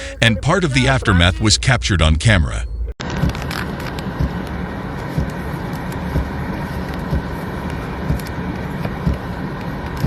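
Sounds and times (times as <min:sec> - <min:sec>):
vehicle rumble and hiss: 0:03.0 - 0:10.0.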